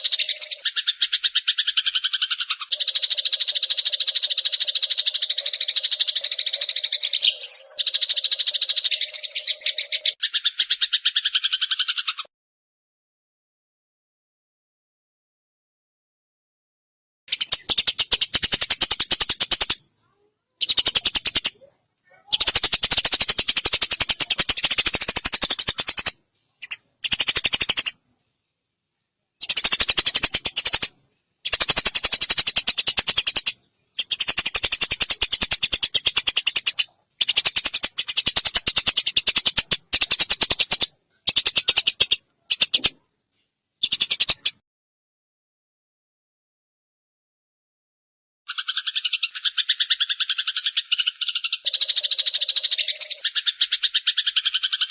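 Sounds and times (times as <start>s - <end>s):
sparrows chattering: 0.0s - 12.3s, 17.3s - 28.0s, 29.4s - 43.0s, 43.8s - 44.6s, 48.5s - 54.9s.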